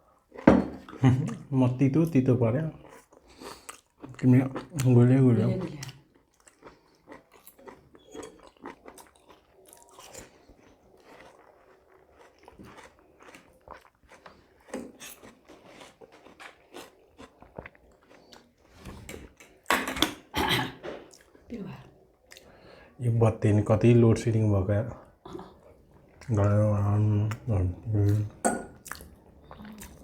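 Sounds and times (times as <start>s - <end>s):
chewing and biting food: 2.8s - 19.7s, 25.6s - 30.0s.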